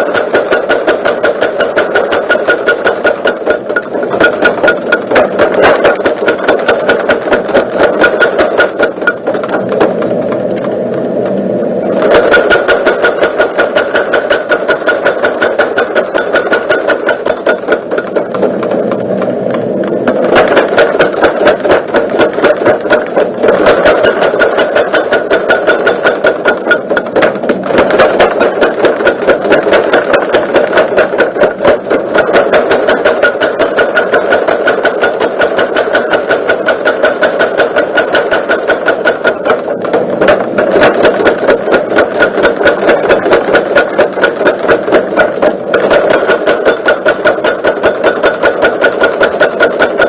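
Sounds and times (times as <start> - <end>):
power hammer striking: 0.0 - 50.0.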